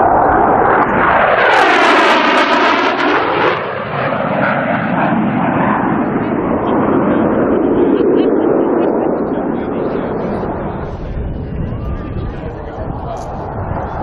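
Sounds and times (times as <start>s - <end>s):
jet flying past: 0.0s - 14.0s.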